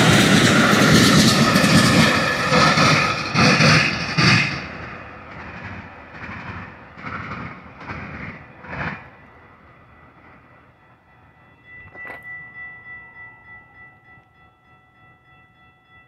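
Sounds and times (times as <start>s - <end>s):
wheel clacks on track: 0.0s - 9.4s
train wheel-on-rail rumble: 0.0s - 15.7s.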